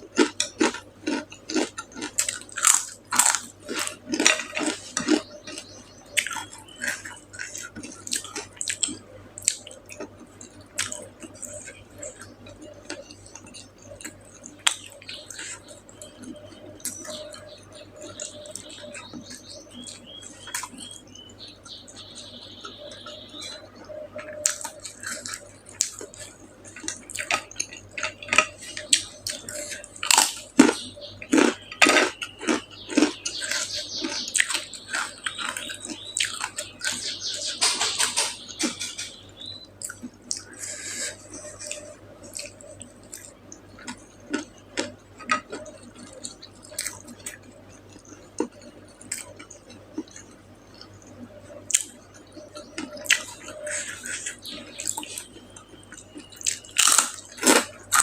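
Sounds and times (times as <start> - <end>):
person chewing and lip smacking: 0.0 - 58.0
dishes and cutlery clinking: 37.5 - 39.2.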